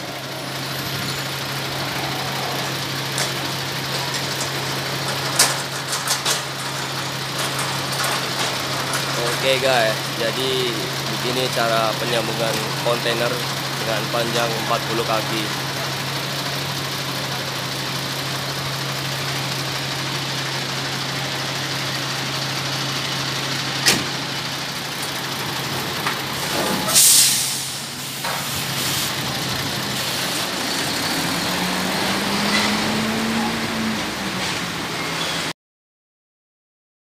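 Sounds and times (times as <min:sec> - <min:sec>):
diesel truck engine idling: 0:00.0 - 0:35.0
compressed air hiss: 0:26.4 - 0:29.2.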